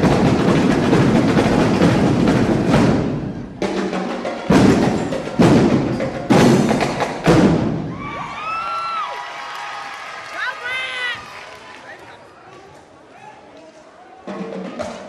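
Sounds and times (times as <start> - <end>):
loud unison drum hits: 0.0 - 8.0
drumline drumming: 0.0 - 8.6, 14.2 - 15.0.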